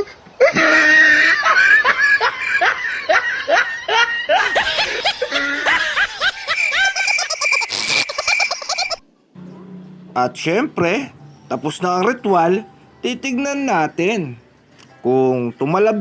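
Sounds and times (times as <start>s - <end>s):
person laughing in rhythmic bursts: 0.0s - 9.0s
steady high tone: 9.4s - 14.5s.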